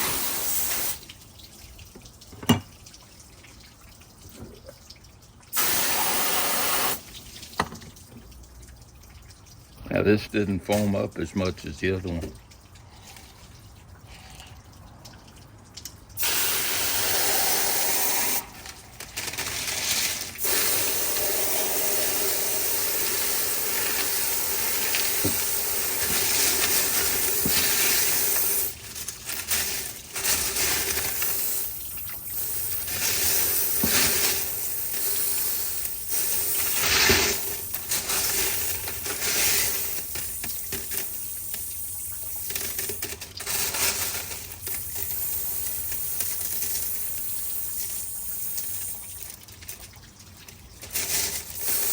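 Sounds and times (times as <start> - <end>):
running water splashing: 0.0 - 51.9.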